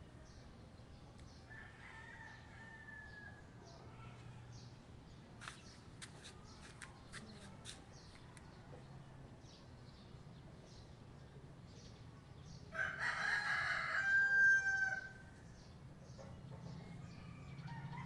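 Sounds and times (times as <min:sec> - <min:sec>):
small birds chirping: 0:00.0 - 0:14.0, 0:15.0 - 0:18.0
distant rooster crowing: 0:01.5 - 0:03.5, 0:12.7 - 0:15.3, 0:17.1 - 0:18.0.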